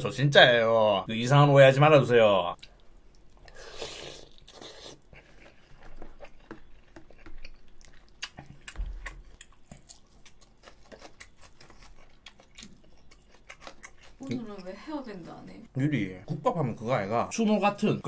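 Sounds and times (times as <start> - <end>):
wet chewing with mouth clicks: 2.6 - 14.7.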